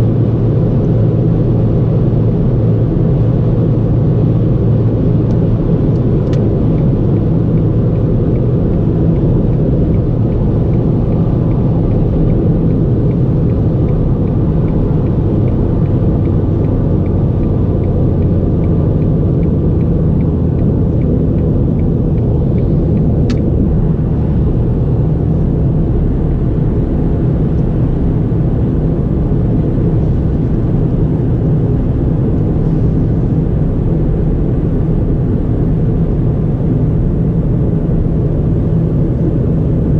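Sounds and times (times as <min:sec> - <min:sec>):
car engine and road noise: 0:00.0 - 0:39.9
faint regular ticking: 0:06.3 - 0:24.8.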